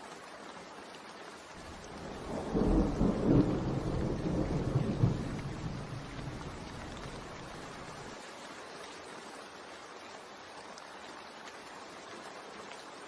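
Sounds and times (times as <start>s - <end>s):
steady rainfall: 0.0s - 13.0s
rolling thunder: 1.6s - 8.0s.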